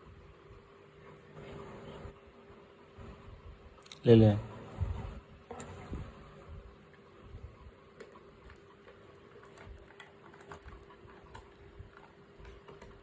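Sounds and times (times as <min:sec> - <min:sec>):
animal chewing meat: 0:05.4 - 0:13.0.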